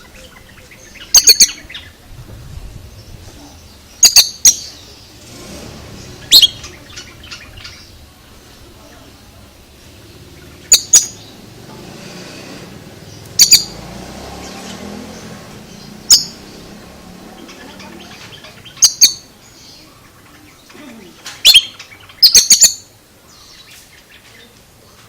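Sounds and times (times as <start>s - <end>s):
bird giving sharp high calls: 0.0s - 2.0s, 6.0s - 8.0s, 10.4s - 11.6s, 13.1s - 13.8s, 15.2s - 20.2s, 21.0s - 22.9s.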